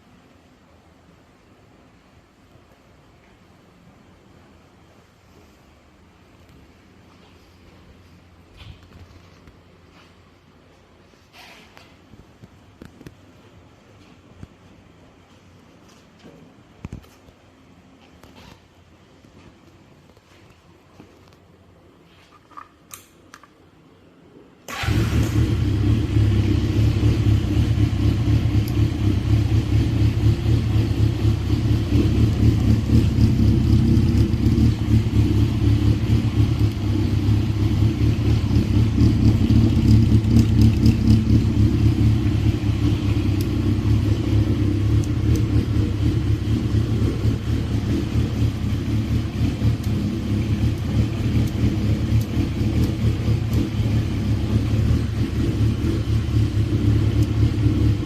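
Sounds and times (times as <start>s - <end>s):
motorcycle engine idling: 24.7s - 58.0s.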